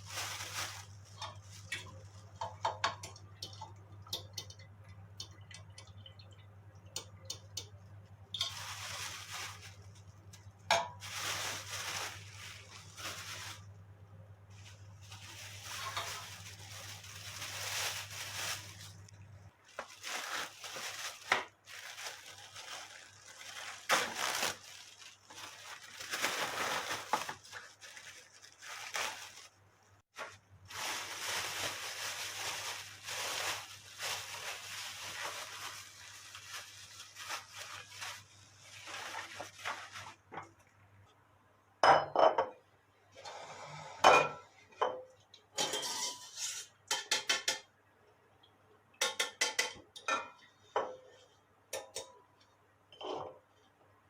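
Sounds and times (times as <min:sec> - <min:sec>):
utensils scraping dishes and pots: 0:45.6 - 0:47.6.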